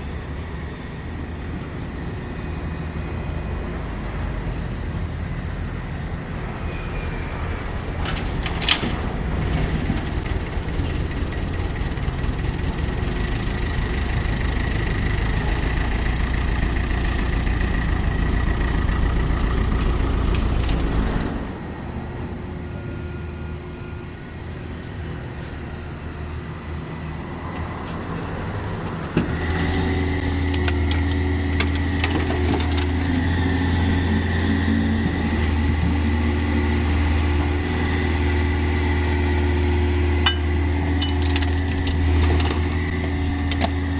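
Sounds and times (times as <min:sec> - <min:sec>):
excavator diesel engine: 0:00.0 - 0:43.9
hydraulic whine: 0:06.4 - 0:25.1, 0:29.0 - 0:43.9.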